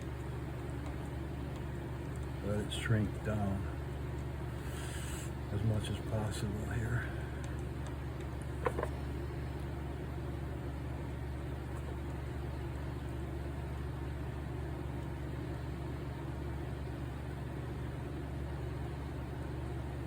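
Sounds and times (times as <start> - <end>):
machine drone with hiss: 4.6 - 7.4.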